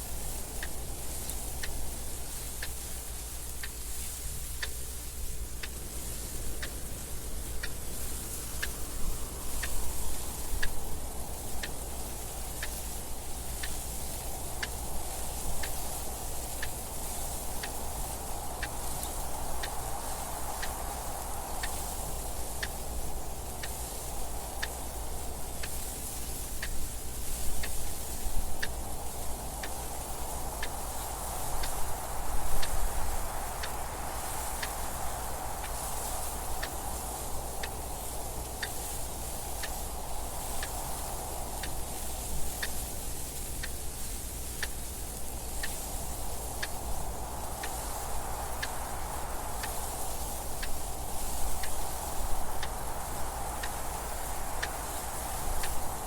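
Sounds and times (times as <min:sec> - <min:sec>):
wind gusts: 0:00.0 - 0:56.0
clock ticking: 0:00.5 - 0:25.9.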